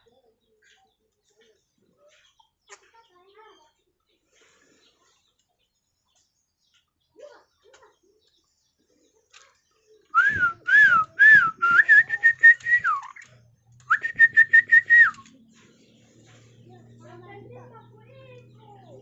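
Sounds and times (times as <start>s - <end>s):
person whistling: 10.2s - 13.1s, 13.9s - 15.3s.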